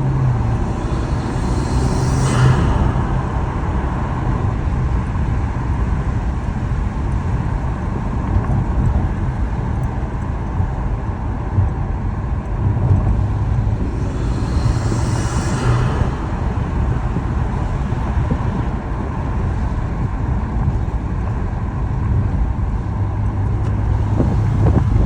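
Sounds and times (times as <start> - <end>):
car engine rumbling: 0.0 - 25.0.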